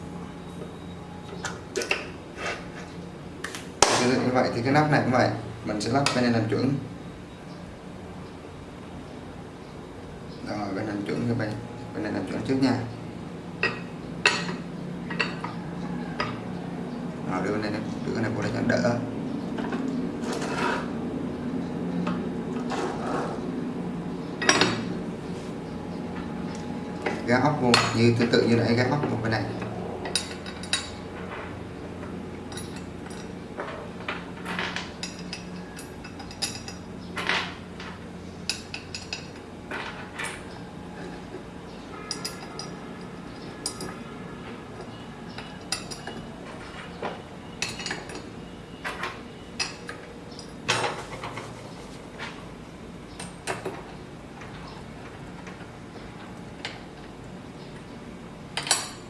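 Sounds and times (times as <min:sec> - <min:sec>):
metal parts clinking: 0:42.0 - 0:44.0.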